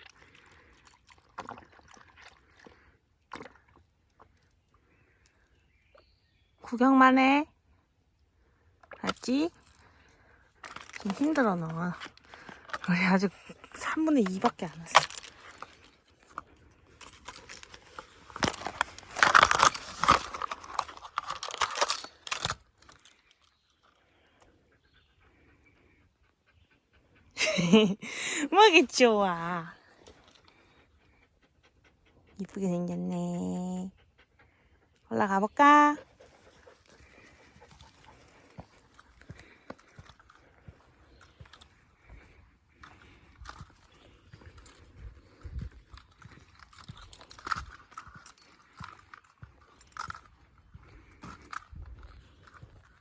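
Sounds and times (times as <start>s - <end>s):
dog lapping water: 0.0s - 4.4s
rustling and crunching: 8.8s - 24.0s, 36.0s - 53.0s.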